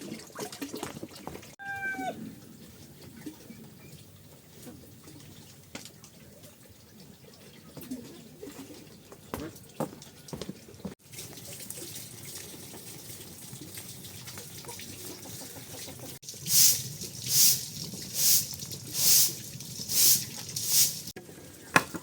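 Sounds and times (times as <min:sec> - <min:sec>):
water running from a tap: 0:11.0 - 0:21.2.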